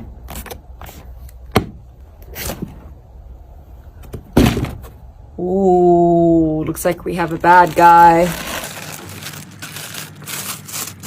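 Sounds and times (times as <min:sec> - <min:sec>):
box thud: 0:04.1 - 0:05.0.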